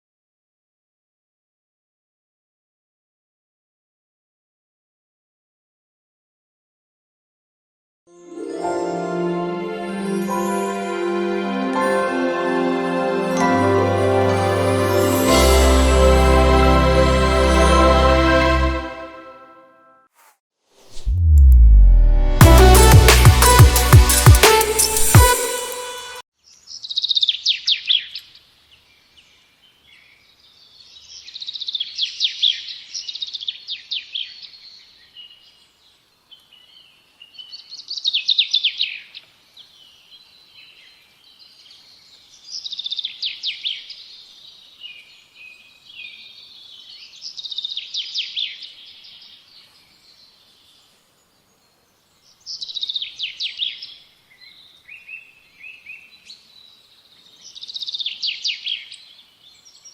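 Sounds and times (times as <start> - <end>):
songbird singing: 26.4 - 59.9.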